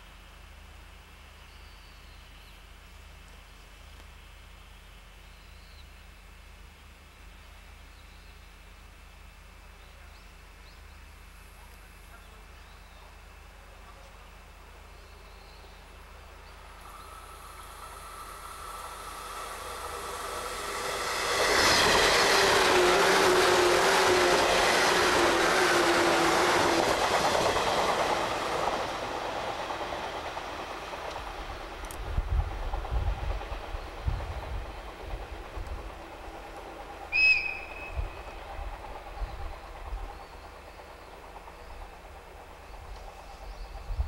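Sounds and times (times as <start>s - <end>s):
electric train passing: 13.0s - 44.0s.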